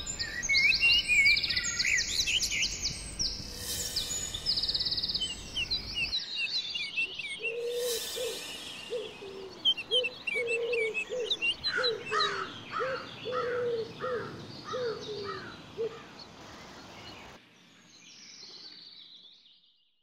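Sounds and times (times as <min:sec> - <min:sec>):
birds chirping and whistling: 0:00.0 - 0:15.4.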